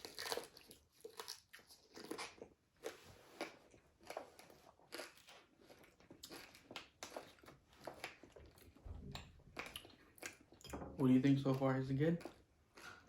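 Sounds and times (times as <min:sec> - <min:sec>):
chewing crispy fried food: 0:00.0 - 0:13.0.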